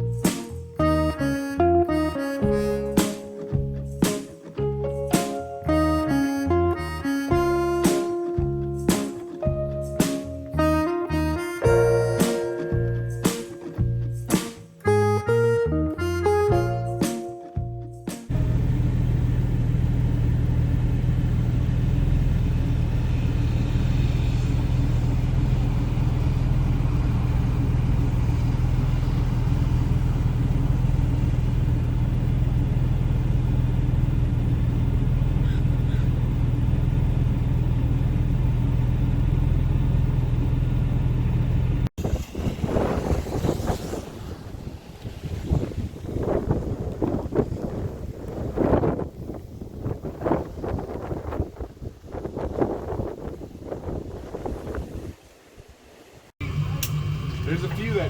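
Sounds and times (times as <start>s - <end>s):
boat engine droning: 17.7s - 46.8s, 56.4s - 58.0s
wind buffeting microphone: 42.0s - 55.8s.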